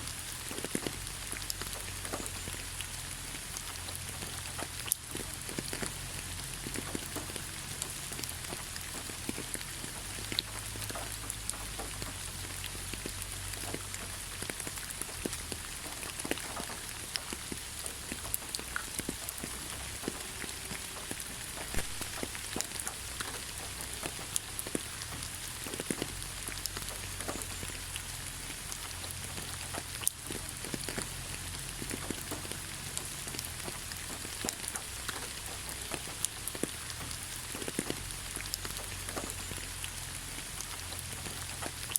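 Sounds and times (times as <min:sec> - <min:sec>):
rain pattering on leaves: 0:00.0 - 0:41.9.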